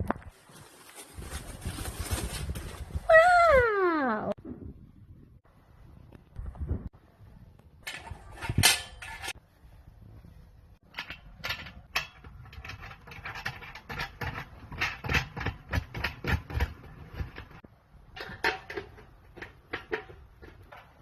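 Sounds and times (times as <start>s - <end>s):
metal panels clicking and rattling: 7.8s - 9.4s, 10.8s - 21.0s.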